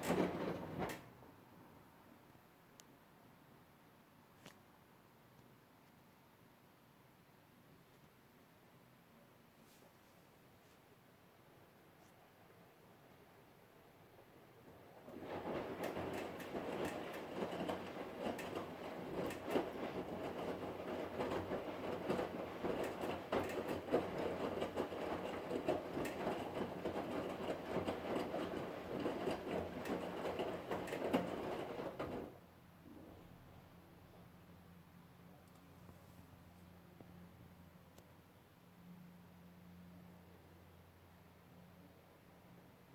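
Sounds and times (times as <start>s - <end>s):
washing machine rattling: 0.0s - 1.2s, 15.0s - 32.4s.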